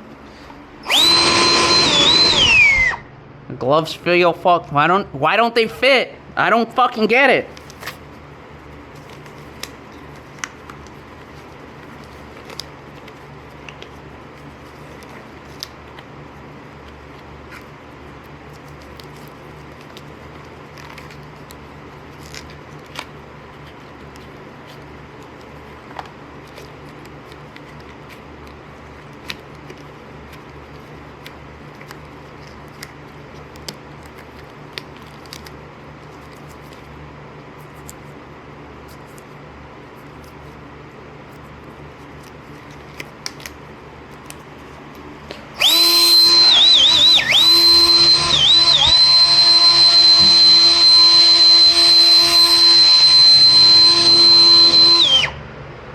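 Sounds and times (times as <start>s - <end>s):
hands handling material: 6.9s - 45.6s.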